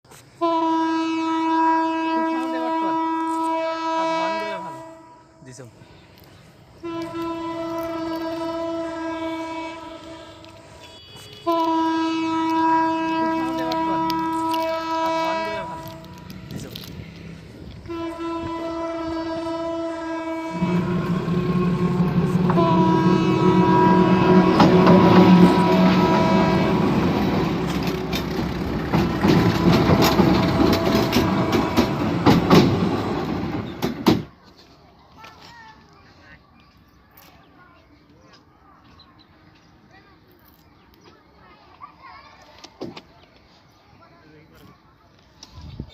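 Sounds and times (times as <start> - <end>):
locomotive air horn blasts: 0.4 - 5.4, 6.8 - 16.4, 17.8 - 33.8
train rumbling: 0.4 - 34.4
wheels knocking over rail joints: 20.7 - 34.3.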